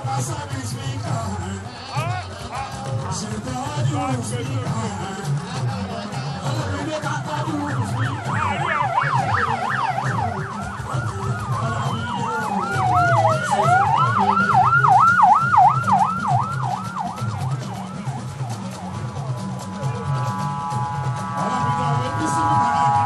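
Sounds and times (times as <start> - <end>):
siren on fast yelp: 6.8 - 23.0
siren gliding down and up: 7.4 - 23.0.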